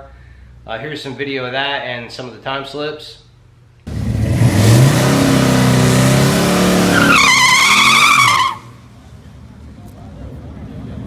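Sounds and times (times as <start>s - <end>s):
car engine accelerating hard: 3.9s - 8.7s.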